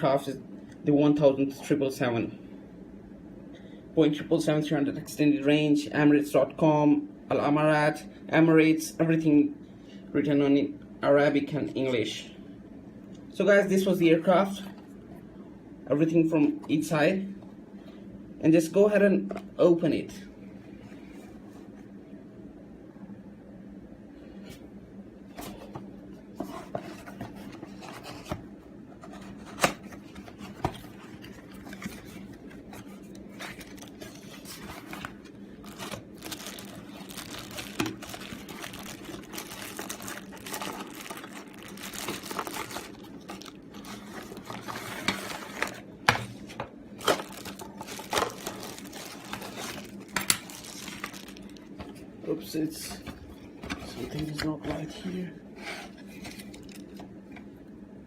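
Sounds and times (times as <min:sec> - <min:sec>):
low steady hum: 0:00.0 - 0:58.0
packaging crinkling and tearing: 0:29.5 - 0:45.8, 0:47.0 - 0:51.8.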